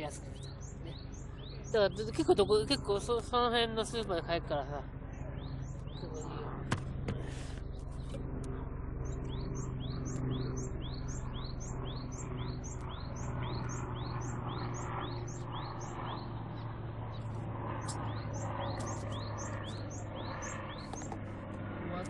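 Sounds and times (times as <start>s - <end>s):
steady low hum: 0.0s - 22.0s
small bird chirping: 9.0s - 21.2s.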